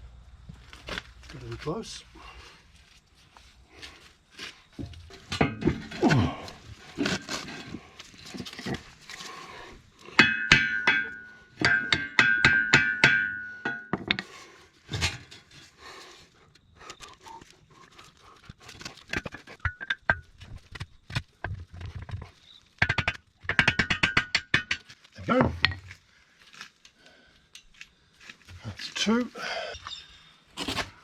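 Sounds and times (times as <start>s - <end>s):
hammer striking metal pin: 10.2s - 14.2s.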